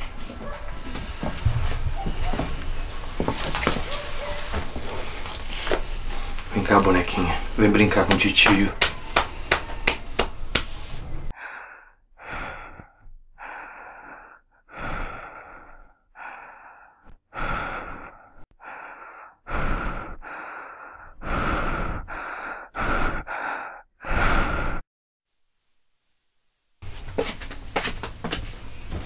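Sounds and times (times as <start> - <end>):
person gasping for breath: 11.4 - 24.8.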